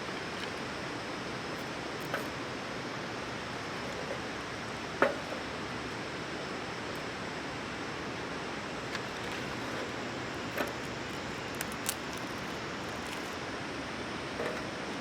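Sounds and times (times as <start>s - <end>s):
wood campfire crackling: 8.6s - 13.4s.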